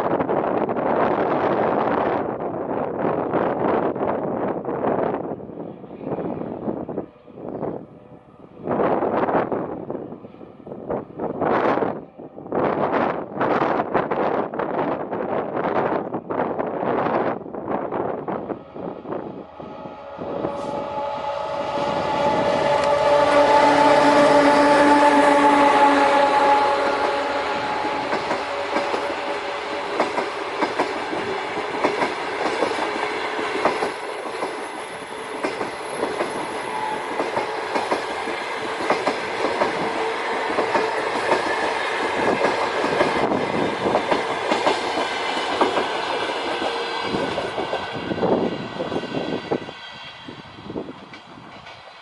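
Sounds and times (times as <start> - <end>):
train rumble: 0.0 - 52.0
train horn blast: 18.7 - 31.5, 36.2 - 43.4
train wheels clacking on rails: 20.4 - 52.0.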